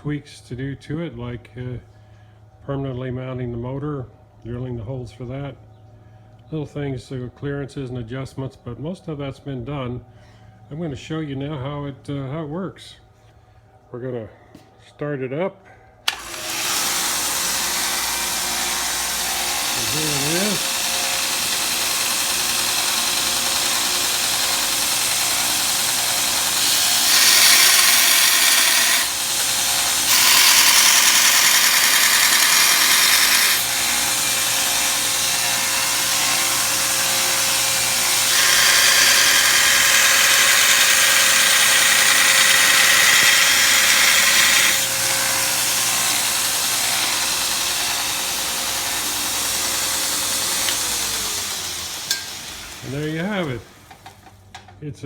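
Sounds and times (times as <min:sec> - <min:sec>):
harsh grinding hiss: 0:16.1 - 0:54.1
belt grinder humming: 0:16.1 - 0:54.3.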